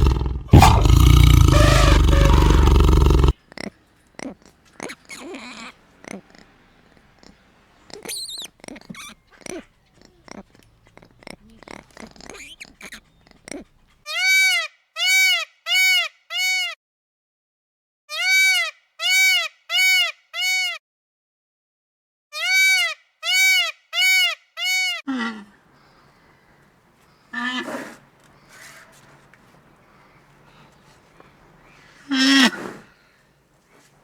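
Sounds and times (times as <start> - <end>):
high animal cry: 0.0 - 14.5, 24.7 - 33.9
small clicks and rustles: 3.3 - 14.0.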